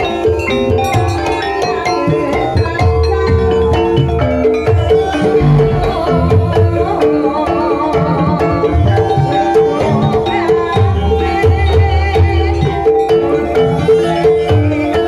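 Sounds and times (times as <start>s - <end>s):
wavering melody line: 0.0s - 15.0s
xylophone melody: 0.0s - 15.0s
hand drum strokes: 2.2s - 10.6s.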